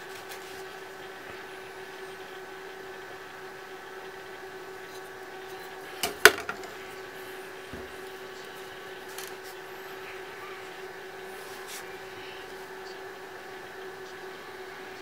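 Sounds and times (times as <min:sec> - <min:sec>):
steady electrical hum: 0:00.0 - 0:15.0
hard objects clicking and knocking: 0:06.0 - 0:06.7.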